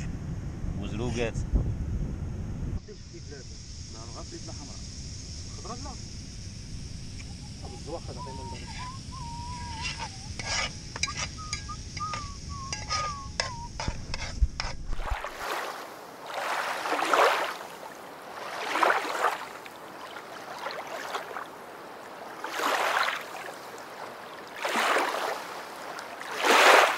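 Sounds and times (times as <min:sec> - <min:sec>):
rushing water: 0:14.9 - 0:26.9.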